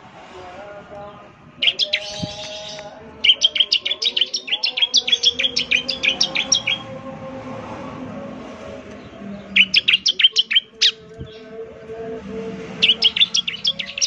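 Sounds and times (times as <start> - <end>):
bird singing sharp high chips: 1.6 - 6.9, 9.5 - 11.5, 12.8 - 14.0.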